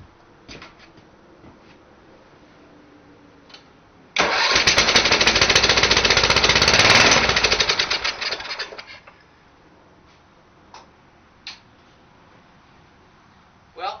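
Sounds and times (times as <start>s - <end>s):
go-kart engine cranking: 4.2s - 9.2s.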